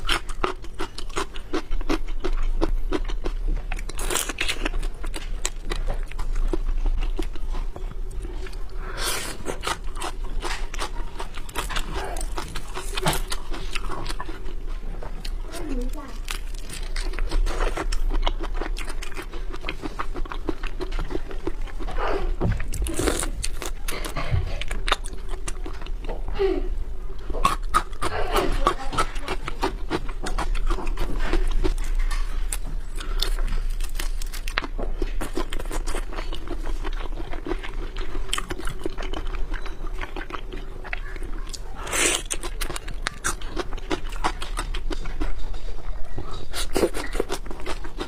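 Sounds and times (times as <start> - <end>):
chewing and crunching: 0.0 - 26.4, 27.0 - 48.0.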